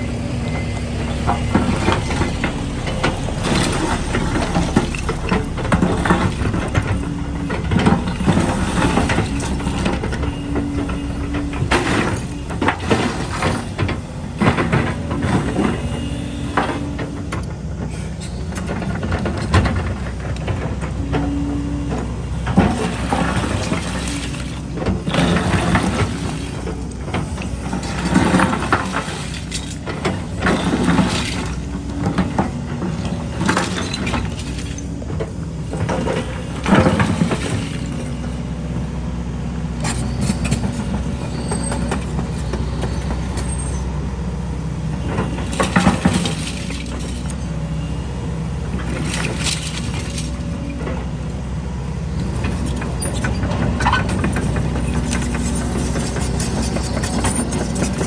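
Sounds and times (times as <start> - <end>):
concrete rubble crunching: 0.0 - 17.6, 21.8 - 39.0, 45.0 - 48.0, 48.6 - 51.1, 52.1 - 58.0
excavator diesel engine running: 0.0 - 58.0.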